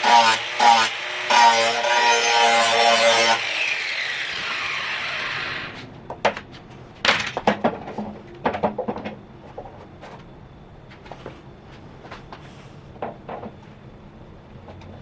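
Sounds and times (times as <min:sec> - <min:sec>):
angle grinder spinning down: 0:00.0 - 0:05.8.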